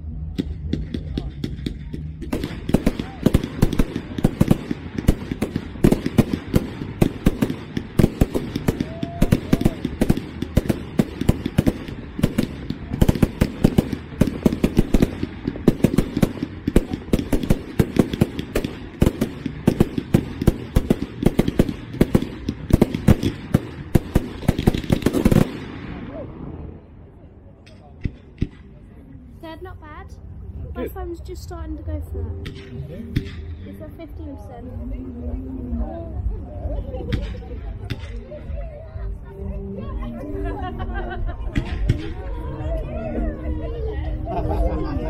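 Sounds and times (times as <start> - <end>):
fireworks bangs and crackles: 0.0 - 26.9, 27.6 - 28.9, 35.8 - 39.9, 41.1 - 45.0.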